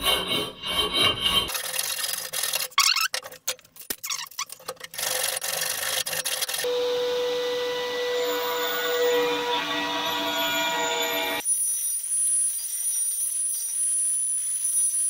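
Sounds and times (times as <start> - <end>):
file rasping on metal: 0.0 - 2.6, 4.9 - 6.7
router motor whine: 6.4 - 11.4.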